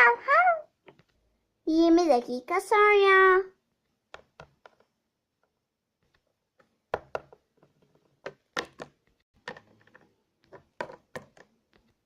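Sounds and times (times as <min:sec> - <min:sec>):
plastic toys knocking on hard surface: 0:06.9 - 0:11.9.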